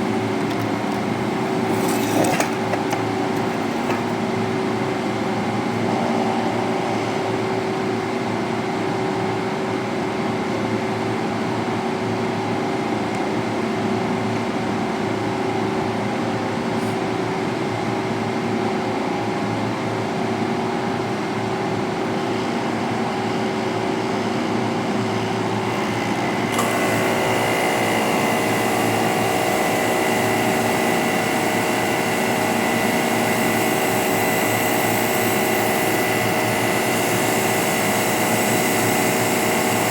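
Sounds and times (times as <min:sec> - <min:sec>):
pressure washer motor humming: 0:00.0 - 0:08.2, 0:24.5 - 0:39.9.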